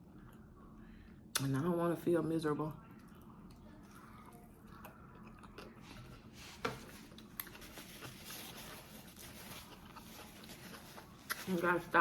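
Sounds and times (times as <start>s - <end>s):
person chewing food: 3.0s - 11.5s
food crunching: 3.0s - 12.0s.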